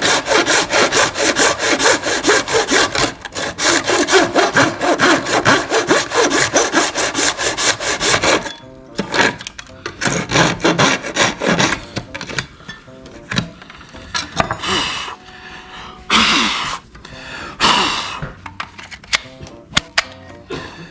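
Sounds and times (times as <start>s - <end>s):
hand saw cutting plastic: 0.0s - 15.2s.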